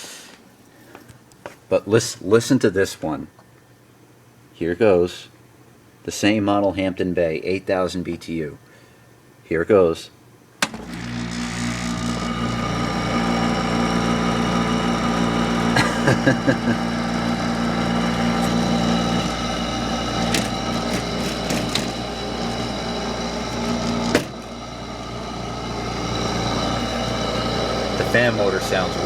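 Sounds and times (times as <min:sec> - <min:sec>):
air conditioner humming: 0:00.0 - 0:29.0
air conditioner switch click: 0:10.6 - 0:11.0
rattles: 0:18.3 - 0:29.0.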